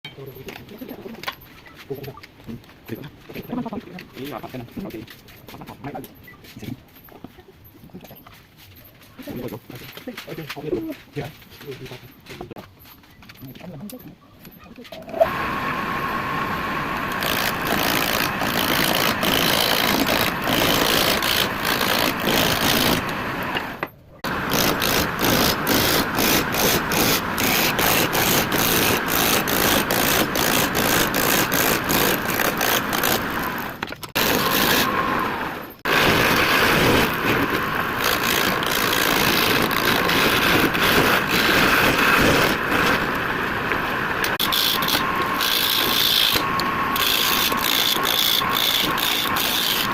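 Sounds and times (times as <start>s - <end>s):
wood lathe cutting wood: 15.1s - 49.9s.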